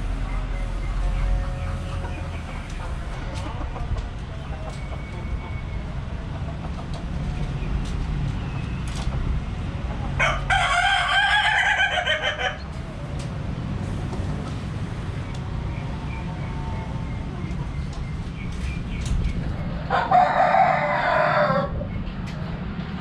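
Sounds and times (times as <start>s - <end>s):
rooster crowing: 10.2s - 12.7s, 19.9s - 21.8s.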